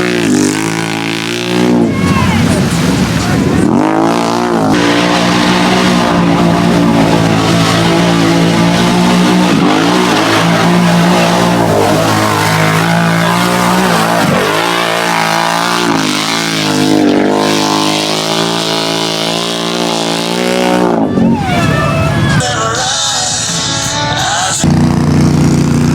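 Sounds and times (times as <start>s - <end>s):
off-road vehicle engine revving: 0.0s - 22.4s, 24.4s - 25.9s.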